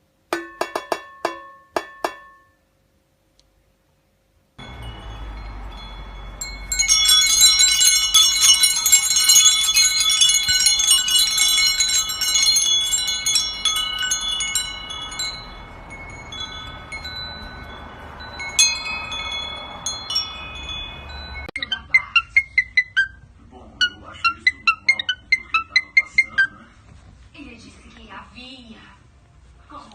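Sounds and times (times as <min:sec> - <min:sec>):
metal wind chimes jangling: 0:04.6 - 0:21.6.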